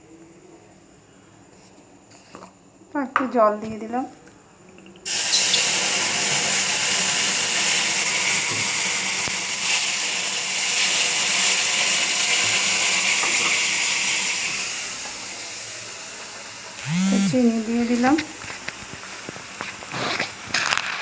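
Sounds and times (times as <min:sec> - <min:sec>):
water poured into hot pan: 0:05.0 - 0:16.8
loud sizzling and steam hiss: 0:05.1 - 0:21.0.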